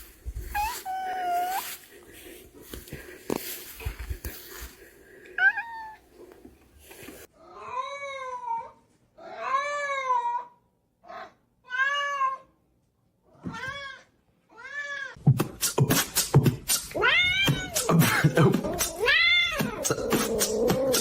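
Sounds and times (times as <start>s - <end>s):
cat meowing: 0.5s - 1.7s, 5.4s - 6.0s, 17.0s - 17.8s, 18.9s - 19.9s.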